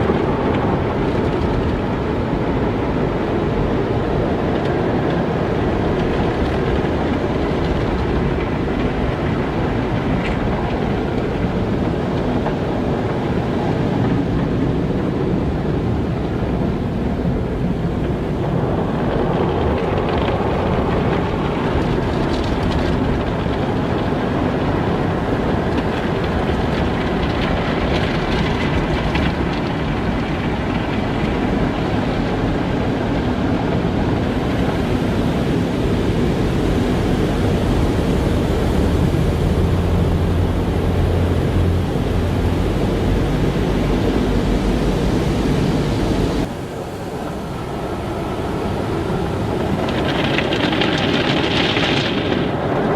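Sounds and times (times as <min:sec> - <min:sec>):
car wash machinery rumbling: 0:00.0 - 0:52.9.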